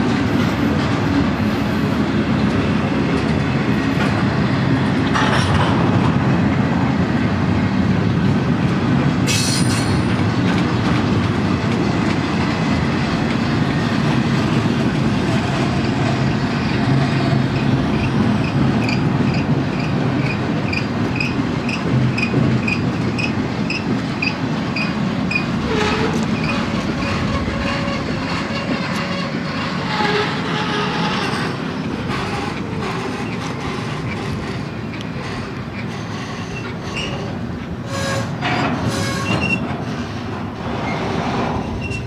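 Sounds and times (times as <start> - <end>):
freight cars rumbling on rail: 0.0 - 42.0
wheel squeals: 17.6 - 37.3, 37.9 - 39.7, 40.8 - 42.0.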